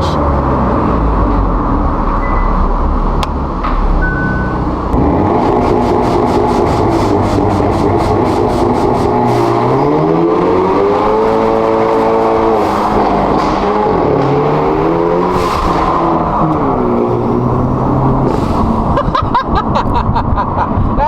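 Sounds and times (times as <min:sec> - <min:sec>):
car engine accelerating hard: 0:00.0 - 0:20.9.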